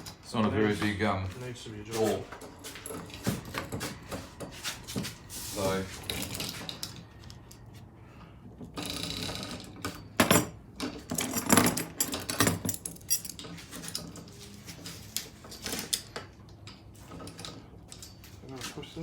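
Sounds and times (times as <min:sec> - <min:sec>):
metal parts clinking and rattling: 0:08.8 - 0:14.4, 0:15.1 - 0:18.4.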